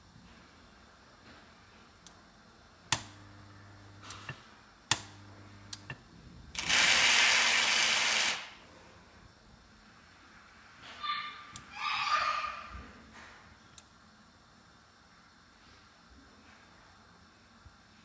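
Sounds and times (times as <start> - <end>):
washing machine component humming: 0.0 - 8.7.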